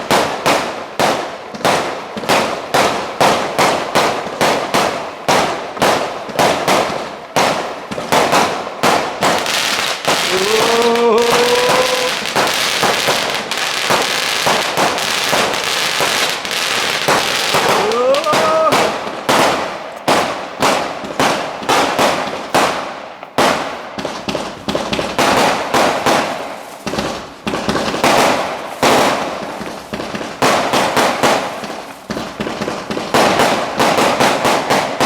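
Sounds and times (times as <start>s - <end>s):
fireworks bangs: 0.0s - 35.0s
fireworks crackling: 0.0s - 35.0s.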